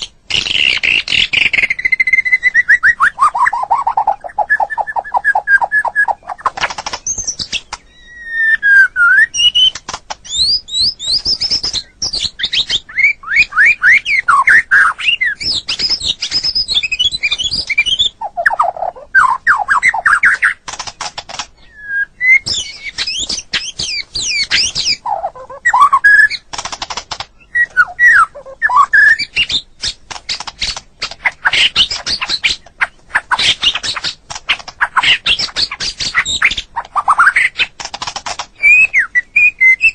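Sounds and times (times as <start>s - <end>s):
bird singing varied whistled song: 0.0s - 20.6s, 21.6s - 26.5s, 27.3s - 34.2s, 34.8s - 37.7s, 38.5s - 39.9s.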